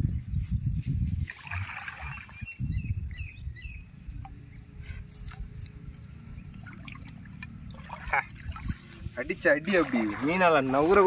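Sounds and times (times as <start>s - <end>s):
low steady rumble: 2.5s - 11.0s.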